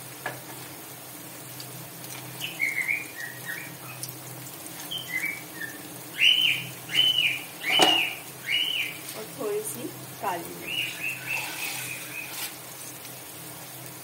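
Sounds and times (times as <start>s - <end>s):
onions frying in oil: 0.0s - 14.0s
bird whistled notes: 2.4s - 3.7s, 4.9s - 9.0s, 10.6s - 12.4s
bird chirps: 2.4s - 4.0s, 4.9s - 9.0s, 10.6s - 12.3s.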